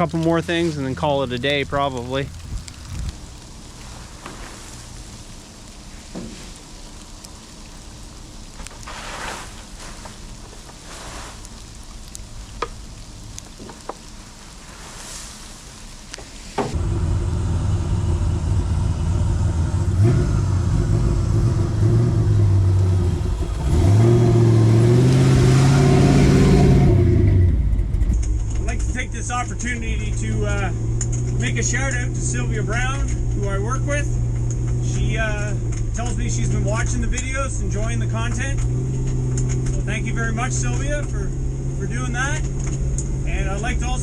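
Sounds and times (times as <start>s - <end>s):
low rain-like hiss: 0.0s - 44.0s
truck engine starting and revving: 16.8s - 44.0s.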